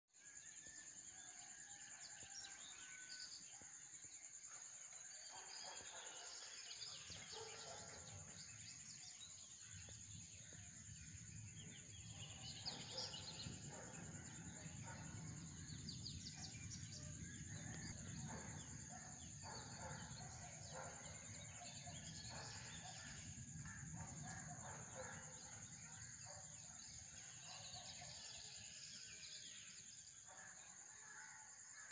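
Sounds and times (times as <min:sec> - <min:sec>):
birds chirping: 0:05.2 - 0:28.7.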